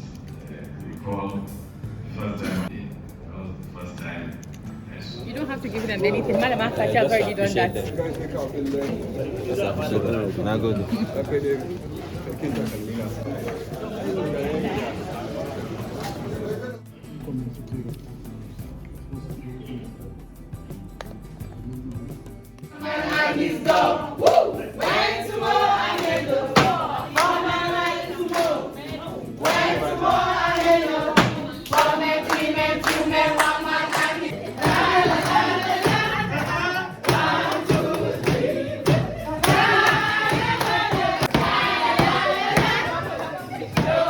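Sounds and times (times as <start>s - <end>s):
group of voices singing: 22.6s - 44.0s
hand claps: 22.6s - 44.0s.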